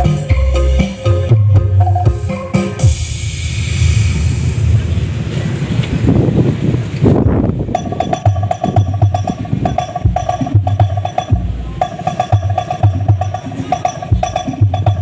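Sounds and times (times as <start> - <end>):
loud dance music: 0.0 - 3.8, 7.7 - 15.0
heavy bass pulses: 0.0 - 15.0
clicking woodblock-like percussion: 7.7 - 15.0.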